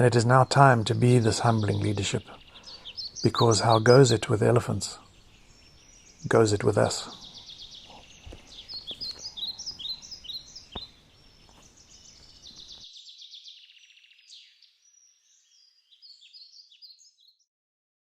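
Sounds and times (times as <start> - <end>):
low background noise: 0.0 - 12.9
birds chirping and trilling: 0.0 - 17.5.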